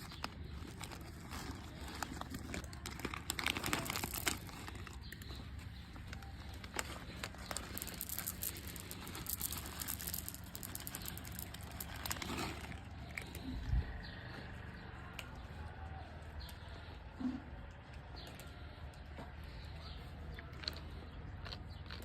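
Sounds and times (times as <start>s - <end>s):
small clicks and crackles: 0.0s - 13.6s
rustling and crinkling: 0.0s - 14.4s.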